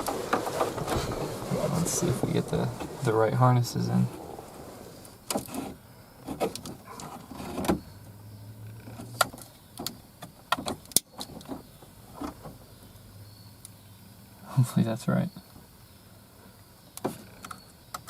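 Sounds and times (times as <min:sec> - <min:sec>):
low steady hum: 0:00.0 - 0:09.8.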